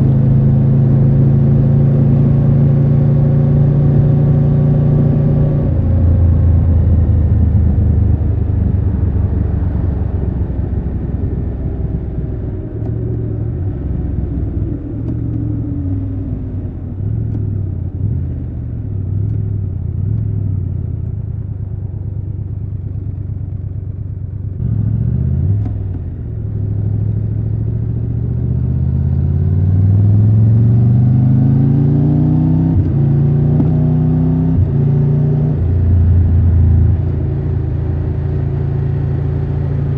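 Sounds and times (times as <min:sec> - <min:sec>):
motorcycle engine: 0:00.0 - 0:28.8.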